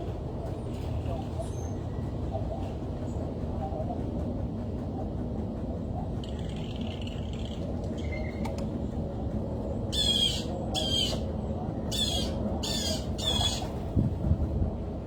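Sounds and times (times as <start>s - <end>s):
bird squawking: 10.0s - 11.2s, 11.9s - 13.6s.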